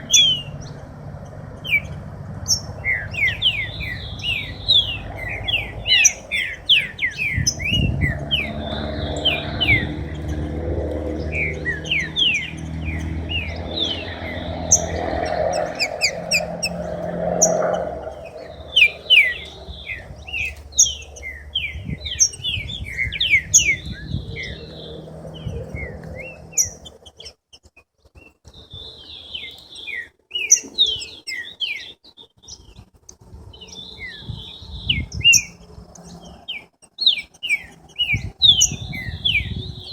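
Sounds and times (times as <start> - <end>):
low rumbling noise: 0.0 - 27.1
songbirds chirping: 0.0 - 39.9.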